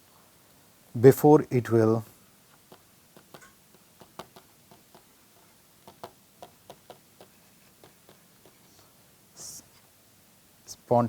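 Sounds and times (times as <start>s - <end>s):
pen tapping while writing: 2.6s - 8.7s.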